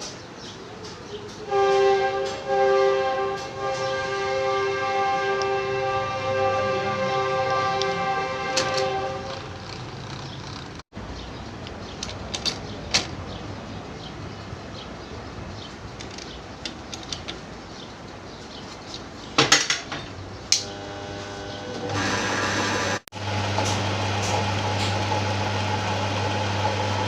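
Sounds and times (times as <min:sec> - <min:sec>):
steady background noise: 0:00.0 - 0:04.2, 0:07.5 - 0:20.6
metal tools clinking: 0:11.9 - 0:13.1.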